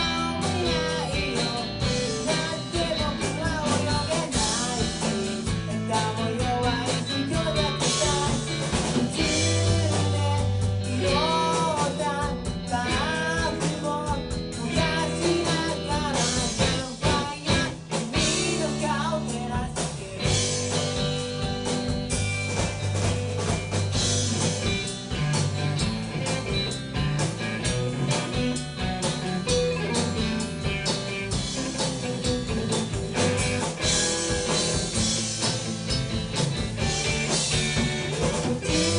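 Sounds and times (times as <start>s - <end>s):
person singing: 0.0s - 21.6s, 37.6s - 38.9s
rock band playing live: 0.0s - 38.9s.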